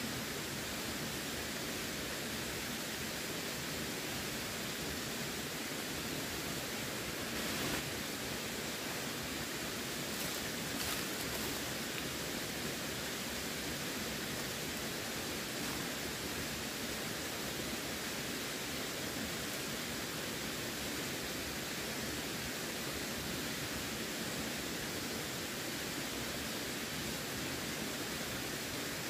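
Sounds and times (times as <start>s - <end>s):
running water flowing: 2.4s - 18.7s.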